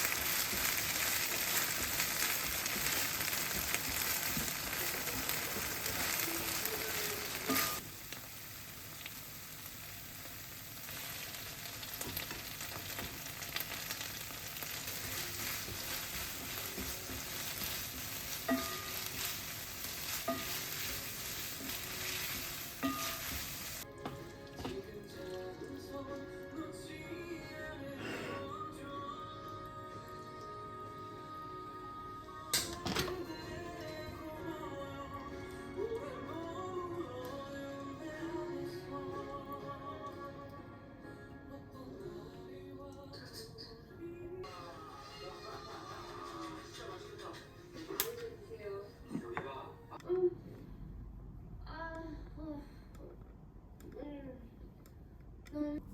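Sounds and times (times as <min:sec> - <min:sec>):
music: 0:00.0 - 0:07.8, 0:12.0 - 0:50.3
food sizzling in frying pan: 0:00.0 - 0:25.3
stirring taps: 0:00.1 - 0:06.7, 0:12.0 - 0:26.4.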